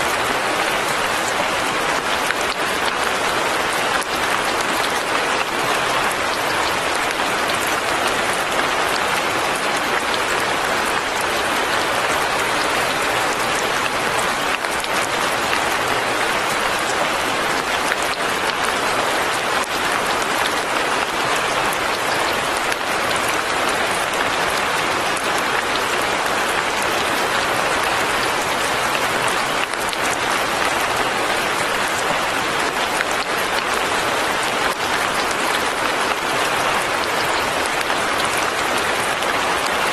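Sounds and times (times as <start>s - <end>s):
light rain patter: 0.0s - 39.9s.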